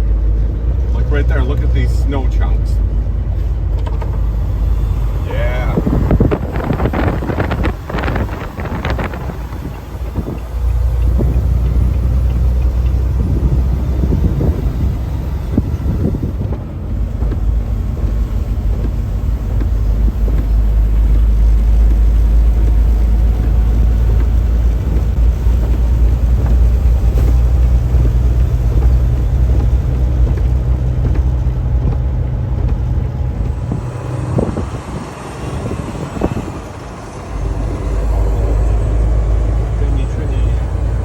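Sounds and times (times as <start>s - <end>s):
engine drone: 0.0s - 41.0s
road rumble: 0.0s - 41.0s.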